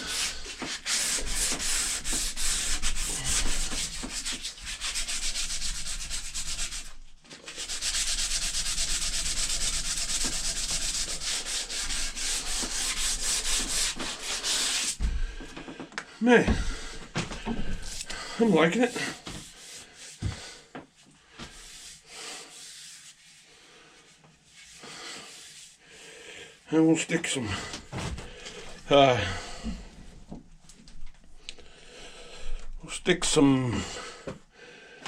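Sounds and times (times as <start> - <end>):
sandpaper rasping on wood: 0.0 - 15.0, 17.7 - 20.7, 21.4 - 25.9.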